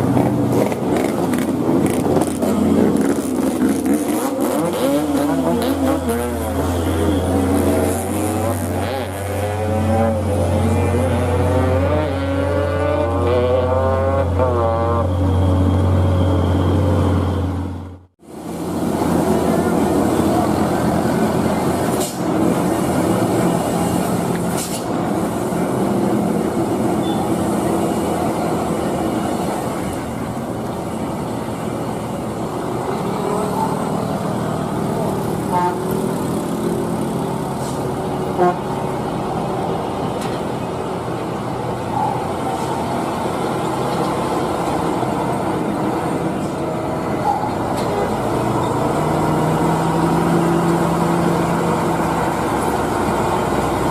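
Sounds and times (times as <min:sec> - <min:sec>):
road traffic: 0:00.0 - 0:53.9
truck diesel engine under load: 0:00.0 - 0:53.9.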